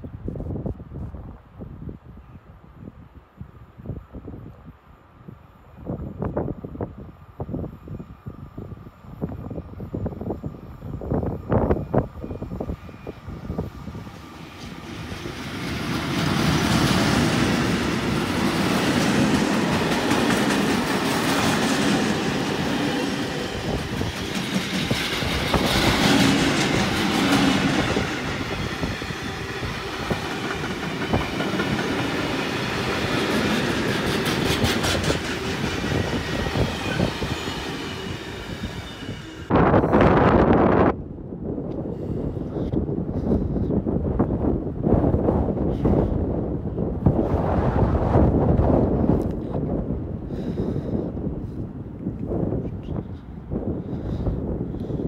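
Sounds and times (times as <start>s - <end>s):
wind buffeting microphone: 0.0s - 55.0s
train wheels rumbling on track: 9.2s - 40.6s
wheels clacking over rail joints: 28.9s - 37.8s.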